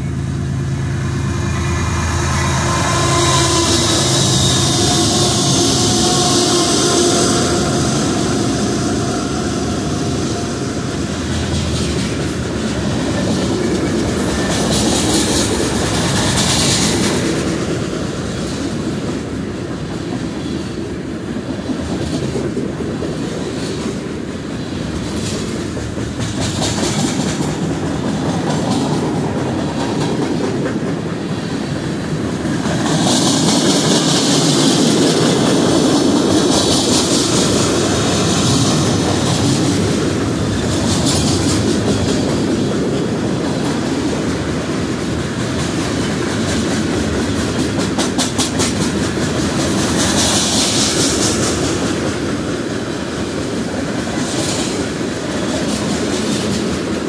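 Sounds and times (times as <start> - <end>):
high wheel hiss: 0.0 - 11.7
train wheels rumbling on rails: 0.0 - 57.0
clickety-clack over rail joints: 3.5 - 57.0.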